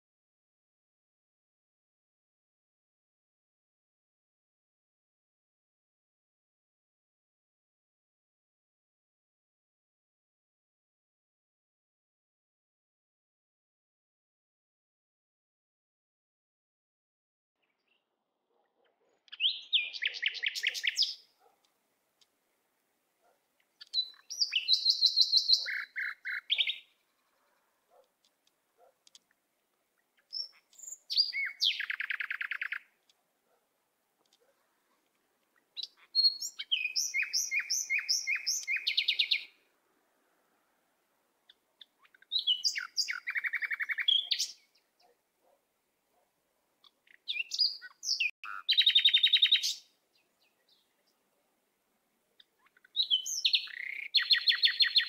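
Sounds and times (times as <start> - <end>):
songbird chirping and trilling: 17.6 - 18.2, 18.8 - 33.6, 34.2 - 39.7, 41.4 - 45.6, 46.8 - 51.5, 52.3 - 55.0.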